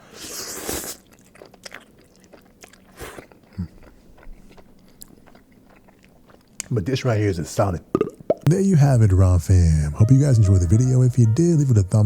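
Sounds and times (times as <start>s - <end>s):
person chewing noodles: 0.1s - 6.7s.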